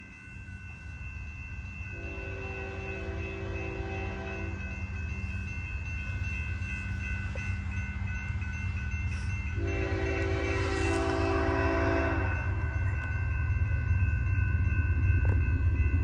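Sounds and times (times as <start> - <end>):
high-pitched ringing: 0.0 - 16.0
locomotive air horn: 9.6 - 12.5.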